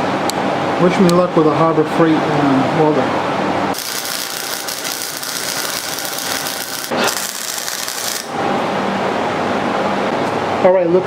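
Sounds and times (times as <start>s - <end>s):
steady hum: 0.0s - 11.0s
welding arc crackling and hissing: 3.7s - 8.4s.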